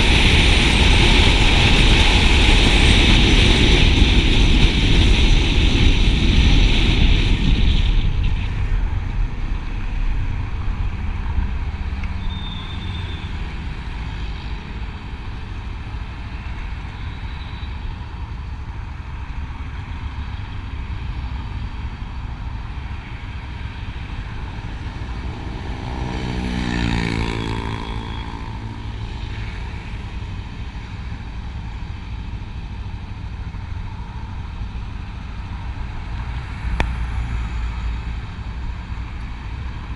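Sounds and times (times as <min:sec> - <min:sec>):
engine and road rumble: 0:00.0 - 0:39.9
wind noise: 0:00.0 - 0:39.9
vehicle passing close by: 0:24.1 - 0:30.0.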